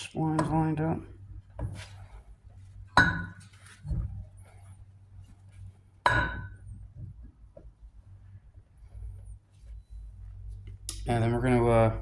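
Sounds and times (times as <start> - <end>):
metallic clanks with ring: 3.0 - 3.5, 6.1 - 6.6.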